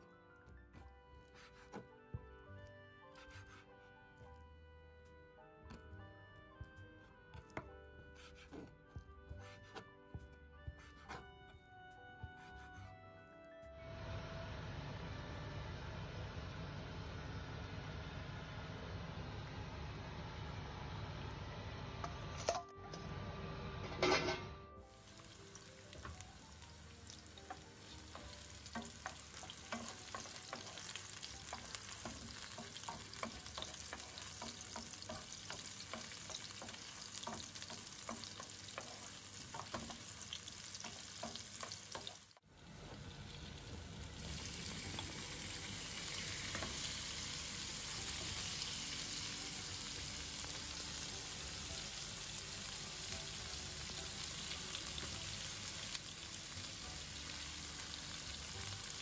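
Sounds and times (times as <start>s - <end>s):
meat frying in a pan: 24.8s - 59.0s
vegetables sizzling in oil: 24.8s - 59.0s
wooden spoon stirring: 25.4s - 42.2s.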